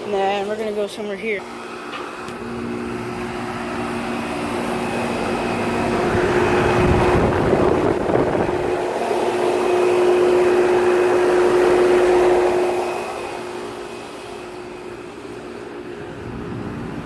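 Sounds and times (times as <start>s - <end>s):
compressor hum: 0.0s - 17.0s
fans rushing: 0.0s - 17.0s.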